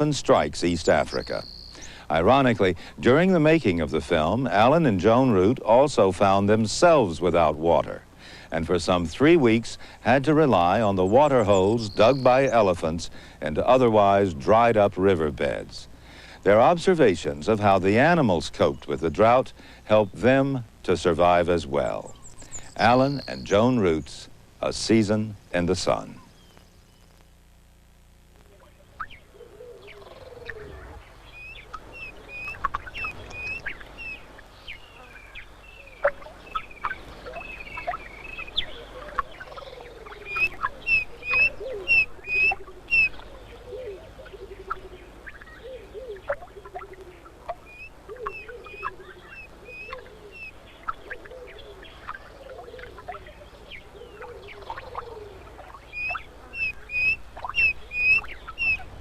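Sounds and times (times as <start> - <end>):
lower falling bird calls: 0.0 - 24.3, 25.0 - 27.4, 28.4 - 59.0
high bird call notes: 0.7 - 2.7, 10.5 - 12.9, 21.8 - 24.0, 28.5 - 59.0.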